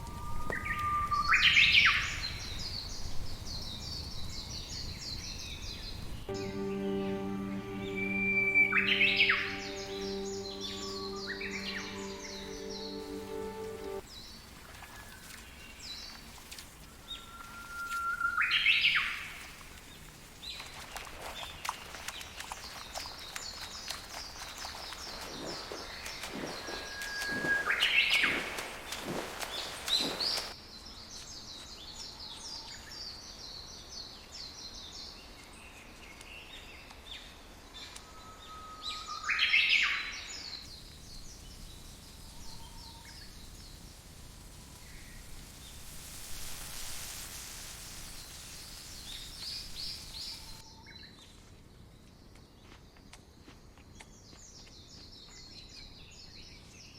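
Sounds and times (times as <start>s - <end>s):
bird whistle with rising note: 6.3s - 14.0s
small birds chirping: 8.0s - 32.0s.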